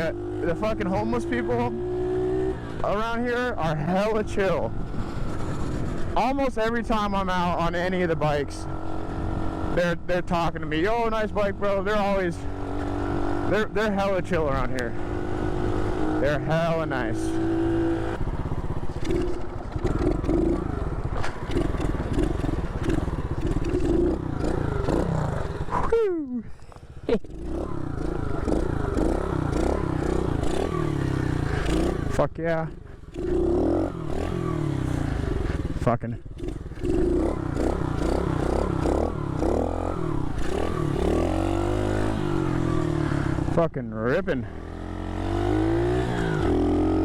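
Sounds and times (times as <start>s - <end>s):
motorbike engine running: 0.0s - 43.6s.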